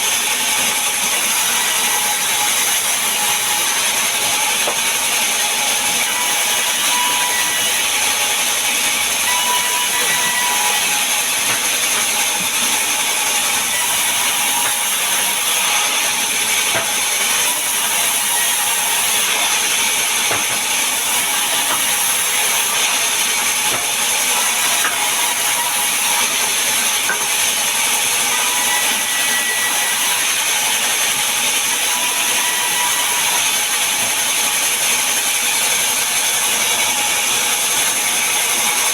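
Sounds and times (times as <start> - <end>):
wood-sawing machine cutting timber: 0.0 - 38.9.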